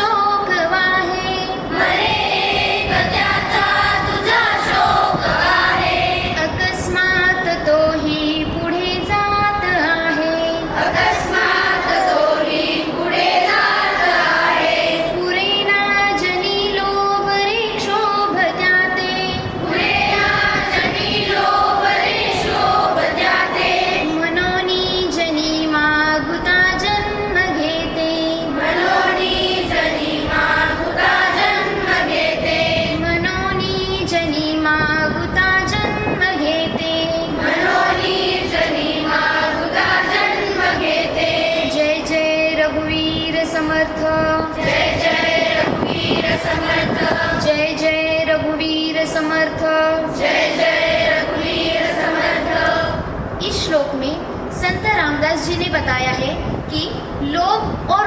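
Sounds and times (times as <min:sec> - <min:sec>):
children singing in chorus: 0:01.0 - 0:07.6, 0:10.5 - 0:15.4, 0:18.8 - 0:24.6, 0:28.3 - 0:33.2, 0:37.2 - 0:42.2, 0:44.5 - 0:47.7, 0:50.0 - 0:53.1.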